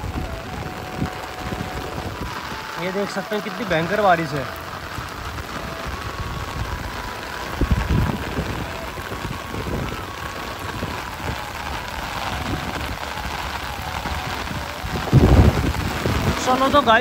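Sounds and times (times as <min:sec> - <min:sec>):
heavy rain pouring: 0:00.0 - 0:17.0
low rumbles on microphone: 0:04.6 - 0:16.4.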